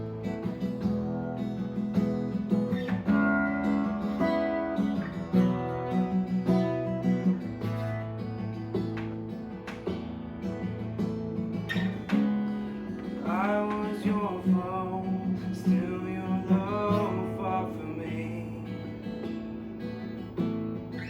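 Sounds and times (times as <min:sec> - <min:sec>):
strummed acoustic guitar: 0:00.0 - 0:21.0
person singing: 0:13.2 - 0:19.0.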